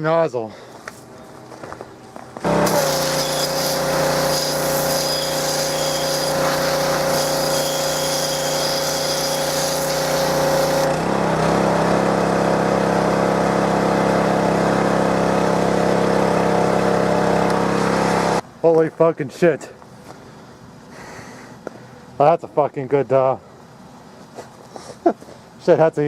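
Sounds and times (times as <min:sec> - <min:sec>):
high-pressure water jet hissing: 0:02.4 - 0:11.0
pressure washer engine running: 0:02.4 - 0:18.4.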